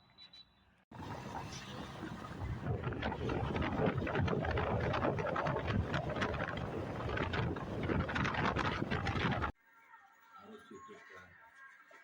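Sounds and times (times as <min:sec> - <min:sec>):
road noise: 0:00.9 - 0:09.6.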